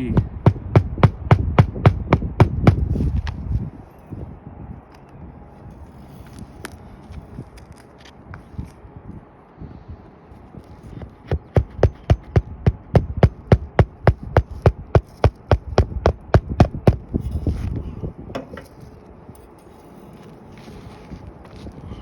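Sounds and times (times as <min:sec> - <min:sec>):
hammer striking roofing nails: 0:00.0 - 0:02.9, 0:11.0 - 0:17.1.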